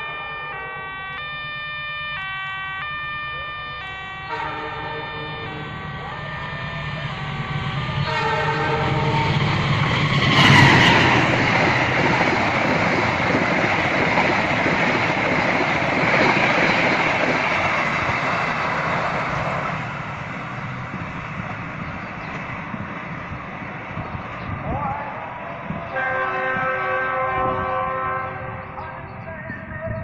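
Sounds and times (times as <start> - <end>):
train wheels rattling over rails: 7.0 - 24.6.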